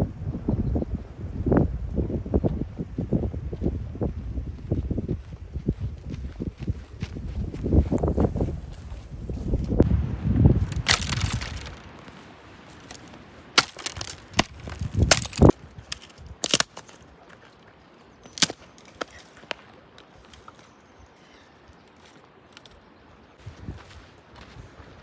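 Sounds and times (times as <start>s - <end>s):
rustling: 10.6s - 17.0s, 18.3s - 19.4s
dry wood cracking: 10.6s - 17.5s, 18.2s - 20.7s.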